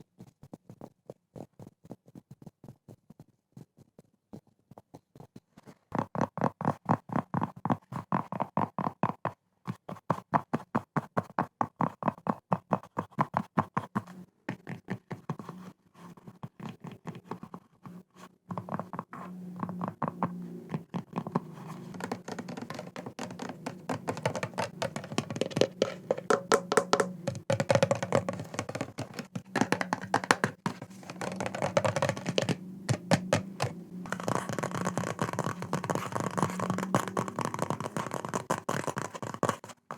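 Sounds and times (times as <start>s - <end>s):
scratching: 16.1s - 39.9s
tapping on an object: 18.5s - 39.9s.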